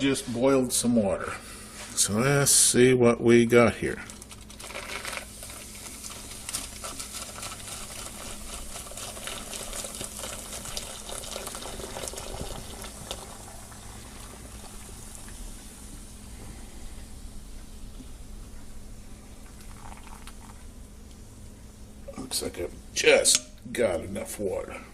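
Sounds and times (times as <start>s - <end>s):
crackling fizz of bubbles: 4.0s - 16.4s, 19.3s - 20.8s
water pouring: 4.5s - 16.1s, 19.4s - 20.6s.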